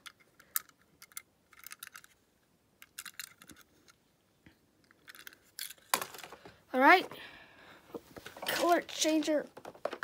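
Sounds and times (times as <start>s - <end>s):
plastic toy and packaging crinkling: 0.0s - 2.2s, 2.8s - 4.0s, 4.8s - 7.0s, 8.2s - 10.0s.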